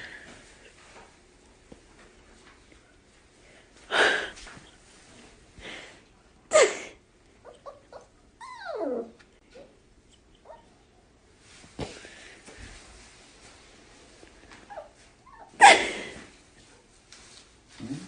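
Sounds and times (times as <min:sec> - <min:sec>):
dog whining: 0:07.4 - 0:09.8.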